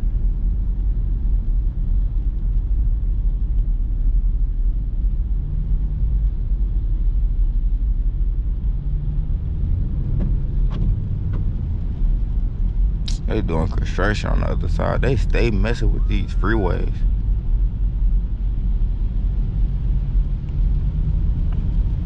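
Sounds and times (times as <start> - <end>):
car exhaust rumble: 0.0 - 22.0
road noise: 5.0 - 22.0.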